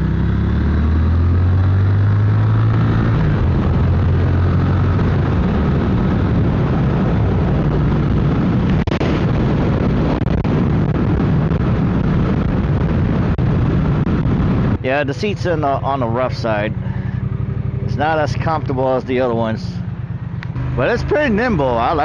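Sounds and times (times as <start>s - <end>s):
motorcycle engine cruising: 0.0s - 22.0s
wind rush on microphone: 0.0s - 22.0s.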